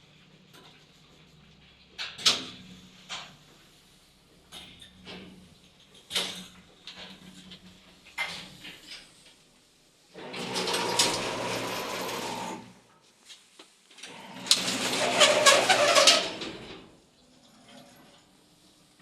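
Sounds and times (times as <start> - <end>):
elevator doors creaking and scraping: 10.2 - 12.6, 14.1 - 16.9.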